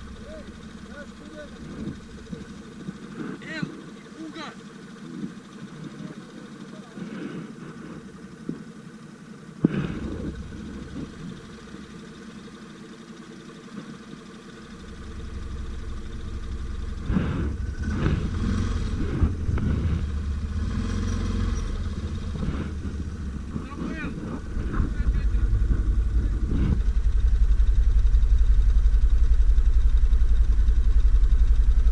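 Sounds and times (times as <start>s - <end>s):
atv engine revving: 0.0s - 31.9s.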